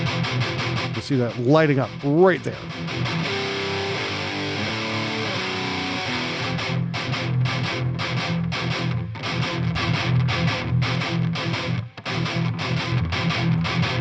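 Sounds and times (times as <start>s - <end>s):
distorted electric guitars: 0.0s - 14.0s.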